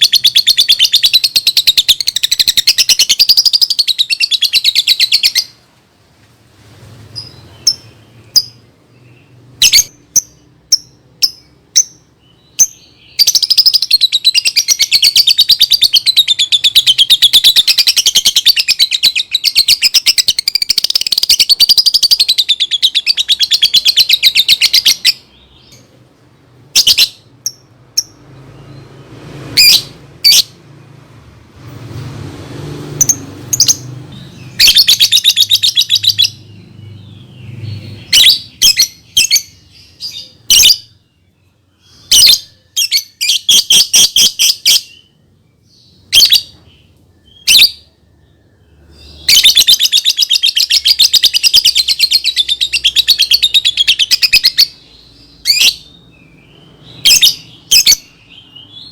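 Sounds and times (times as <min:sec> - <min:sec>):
lovebird chattering trills: 0:00.0 - 0:05.6, 0:09.6 - 0:25.9, 0:33.0 - 0:36.6, 0:49.1 - 0:56.0.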